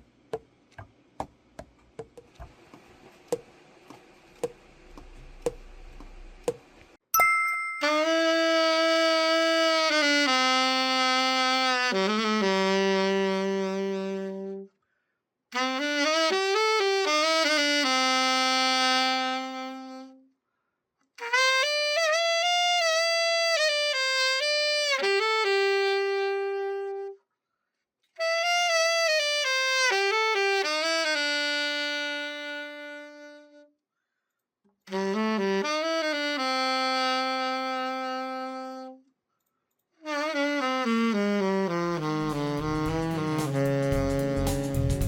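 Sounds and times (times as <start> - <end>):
alto saxophone playing: 7.8 - 14.8, 15.5 - 20.3, 21.2 - 27.2, 28.2 - 33.7, 34.9 - 39.1, 40.0 - 45.0.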